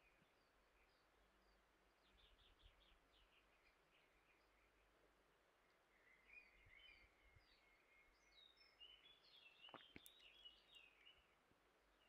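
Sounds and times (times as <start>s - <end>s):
faint clicks: 9.7s - 10.4s.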